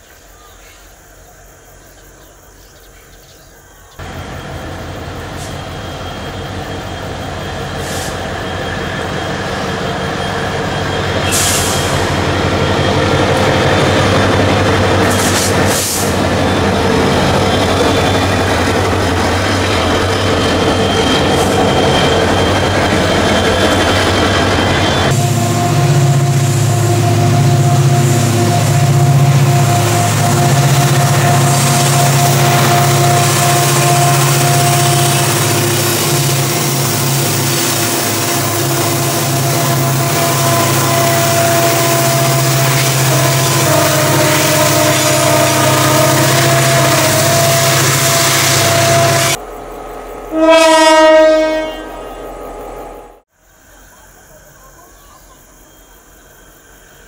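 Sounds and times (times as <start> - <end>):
locomotive engine drone: 4.0 - 55.0.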